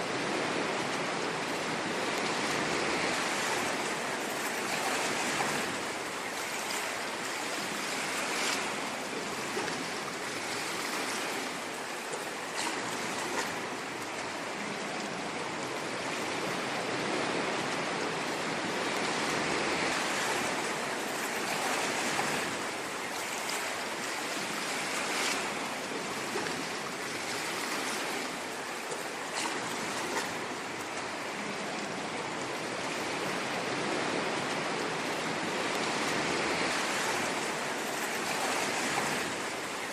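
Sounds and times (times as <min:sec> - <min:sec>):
ocean waves washing on shore: 0:00.0 - 0:39.9.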